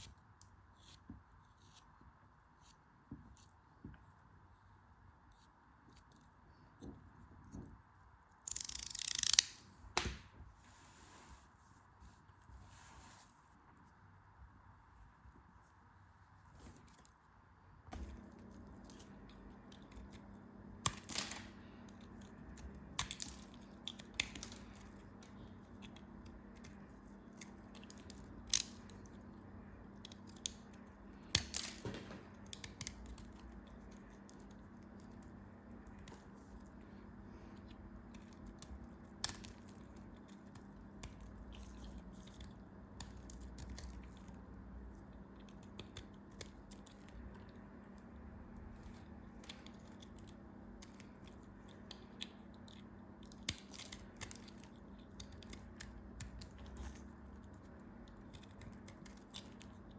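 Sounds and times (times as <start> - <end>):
brittle material cracking: 8.4 - 10.2, 18.0 - 36.7, 48.8 - 59.9.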